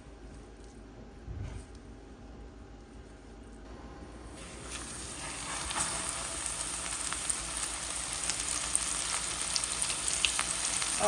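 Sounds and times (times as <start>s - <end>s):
fish frying in hot oil: 4.4s - 11.0s.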